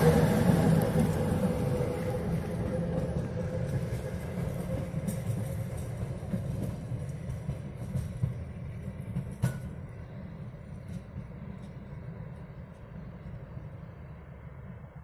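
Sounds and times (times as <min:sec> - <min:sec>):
wheels clicking over rail joints: 0:00.0 - 0:12.9
railcars rumbling over tracks: 0:00.0 - 0:15.0.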